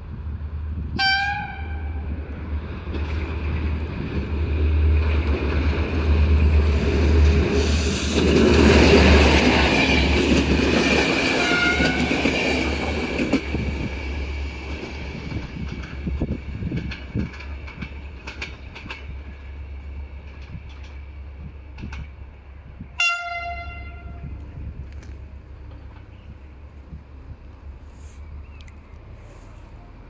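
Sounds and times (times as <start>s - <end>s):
diesel locomotive passing: 0.0s - 30.0s
train horn blast: 1.0s - 2.0s, 11.3s - 12.2s, 23.0s - 24.3s
wheels clacking over rail joints: 2.6s - 19.5s, 20.2s - 22.2s.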